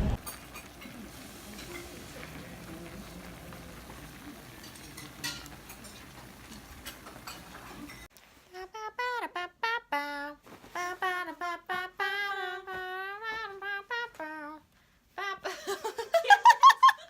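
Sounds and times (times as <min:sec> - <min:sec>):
woman singing unaccompanied: 0:08.4 - 0:16.0.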